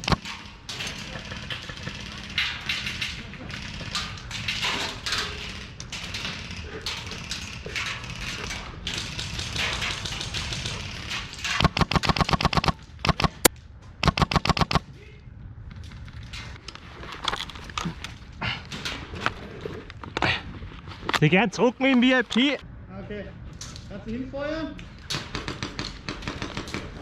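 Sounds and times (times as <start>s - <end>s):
airsoft gun firing: 0.0s - 0.5s, 9.0s - 14.8s.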